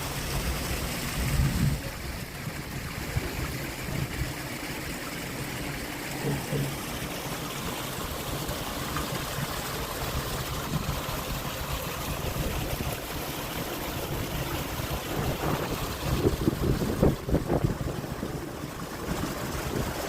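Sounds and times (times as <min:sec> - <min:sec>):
running water: 0:00.0 - 0:20.0.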